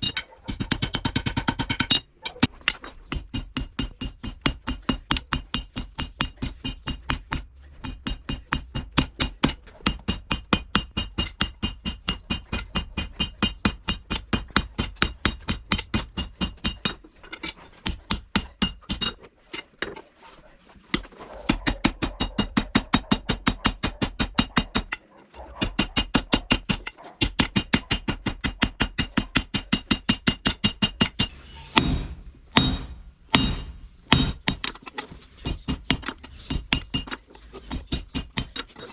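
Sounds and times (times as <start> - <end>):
hammer blows on hot steel: 31.1 - 34.7.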